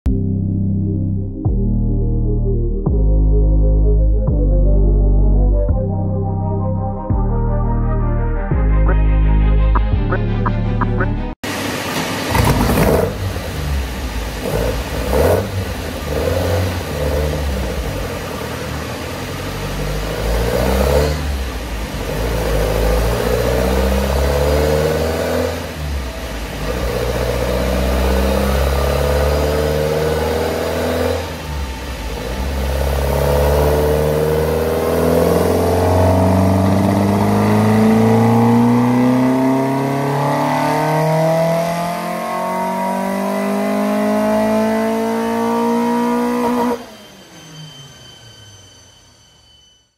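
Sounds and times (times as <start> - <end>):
car engine revving: 9.8 - 47.2.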